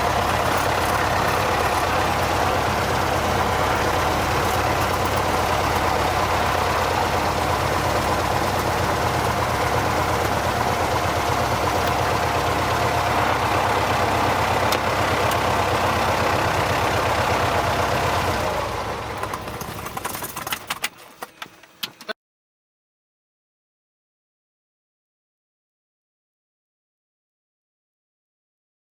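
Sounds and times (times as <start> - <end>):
aircraft piston engine idling: 0.0 - 20.8.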